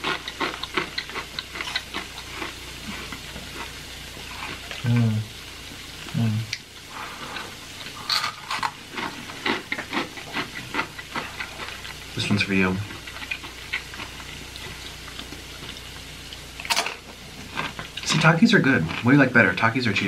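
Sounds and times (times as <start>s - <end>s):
crunching and chewing chips: 0.0s - 4.8s, 7.4s - 12.0s, 12.8s - 15.8s, 17.4s - 19.7s
person humming: 6.1s - 6.6s.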